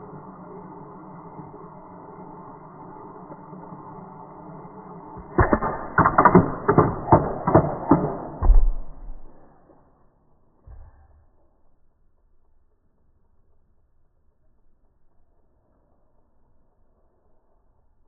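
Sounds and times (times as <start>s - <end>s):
faint steady hum: 0.0s - 6.7s
hard knocks and clacks: 5.2s - 9.5s.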